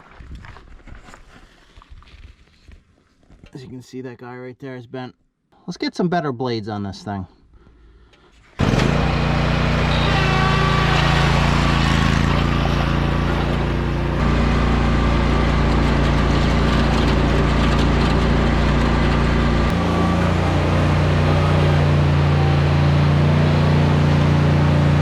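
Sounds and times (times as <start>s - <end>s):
lawn mower engine running: 8.6s - 25.0s.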